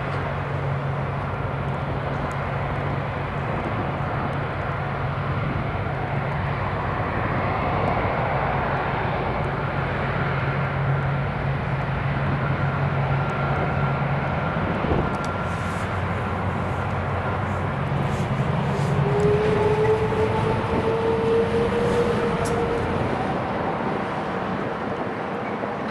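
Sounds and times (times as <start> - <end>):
jet engines humming: 0.0 - 25.9
engine whine rising: 14.9 - 25.0.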